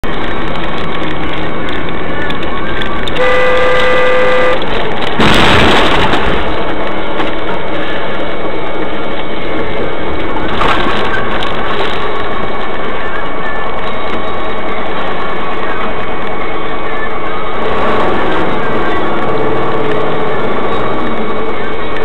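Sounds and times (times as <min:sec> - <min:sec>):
vehicle and road noise: 0:00.0 - 0:22.0
car horn: 0:03.1 - 0:05.4
loud collision bang: 0:04.6 - 0:07.6.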